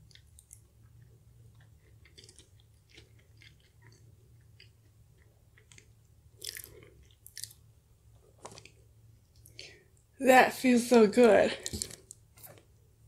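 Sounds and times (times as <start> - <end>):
chewing flaky pastry: 0.0 - 9.9.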